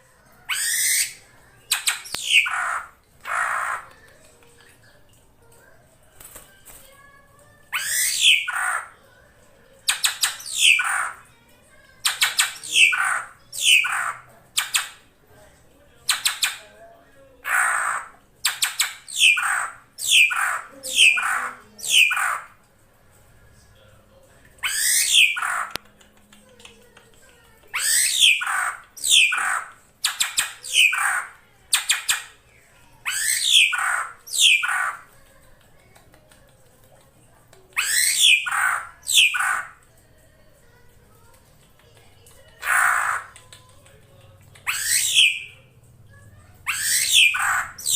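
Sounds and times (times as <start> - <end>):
drongo calling: 0.5 - 3.9, 12.2 - 15.0, 17.4 - 22.6, 24.6 - 25.8, 27.7 - 32.3, 33.0 - 35.1, 37.8 - 39.8, 42.6 - 43.4, 46.7 - 47.9
sharp clicks: 1.7 - 2.5, 25.4 - 27.9
drongo harsh calls: 1.9 - 3.8, 7.7 - 8.9, 17.4 - 18.2, 24.6 - 25.7, 33.0 - 35.1, 37.8 - 39.8, 42.6 - 43.3.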